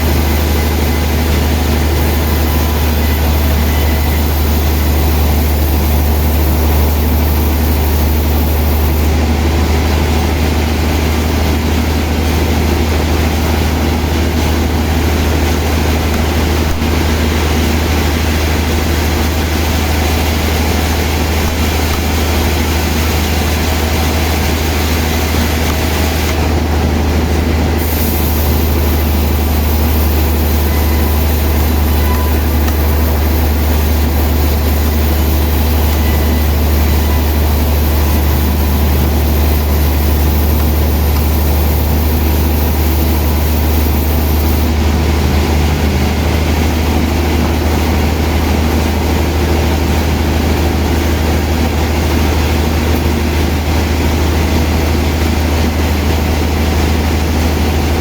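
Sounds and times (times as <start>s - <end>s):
low hum: 0.0s - 9.9s, 15.2s - 47.3s
sawmill machinery running: 0.0s - 58.0s.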